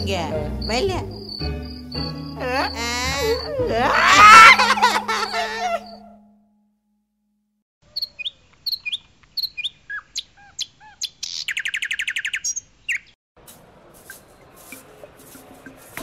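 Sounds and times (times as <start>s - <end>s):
songbirds chirping and trilling: 0.1s - 6.2s, 7.9s - 13.2s.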